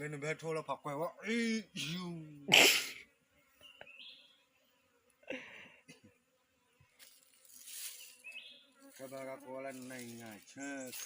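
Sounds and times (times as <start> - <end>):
faint bird chirp: 3.6 - 4.5, 7.6 - 9.2
soft rustles: 7.0 - 11.0.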